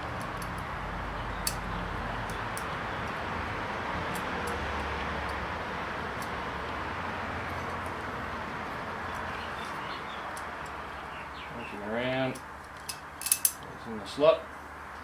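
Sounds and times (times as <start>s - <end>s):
metal ring clicking into groove: 12.8s - 13.6s.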